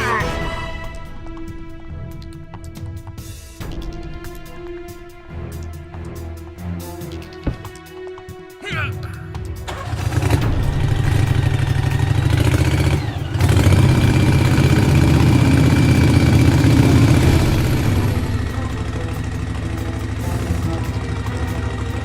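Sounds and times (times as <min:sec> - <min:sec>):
engine running with pulsing rumble: 0:09.6 - 0:22.0.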